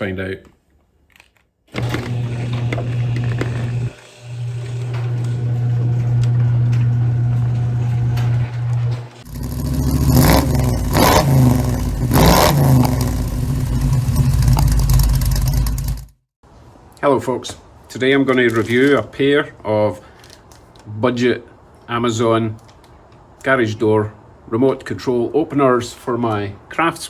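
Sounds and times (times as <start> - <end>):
car engine revving: 9.2 - 16.1.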